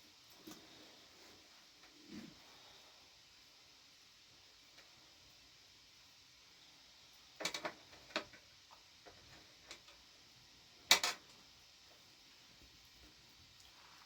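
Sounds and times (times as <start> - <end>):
clicks and knocks of objects handled: 7.4 - 8.4, 10.9 - 11.4.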